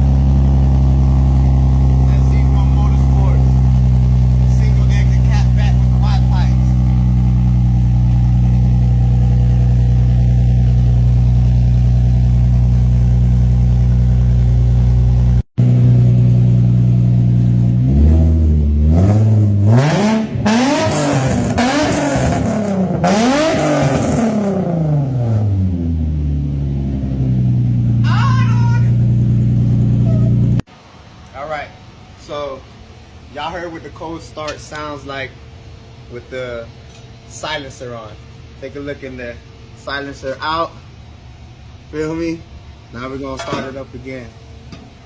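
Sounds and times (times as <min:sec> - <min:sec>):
car engine idling and revving: 0:00.0 - 0:30.9.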